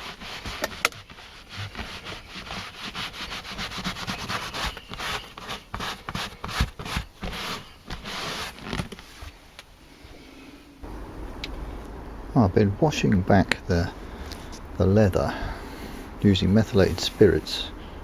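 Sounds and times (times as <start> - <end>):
cloth rubbing on leather: 0.0 - 9.4.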